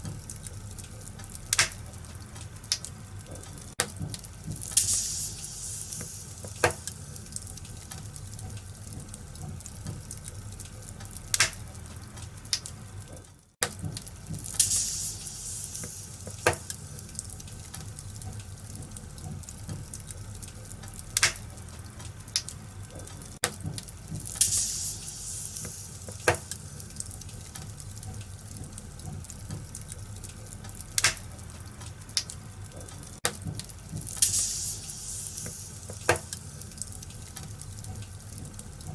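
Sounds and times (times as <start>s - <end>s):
wood fire crackling and popping: 0.0s - 38.9s
soft hiss: 4.3s - 8.2s, 14.2s - 18.0s, 24.0s - 28.5s, 33.8s - 38.6s.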